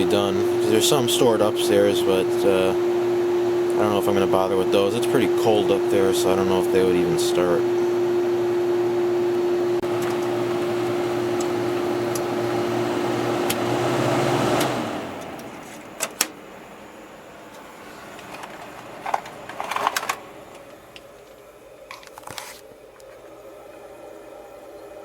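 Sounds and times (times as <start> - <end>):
refrigerant hissing: 0.0 - 8.0
air conditioner humming: 0.0 - 25.0.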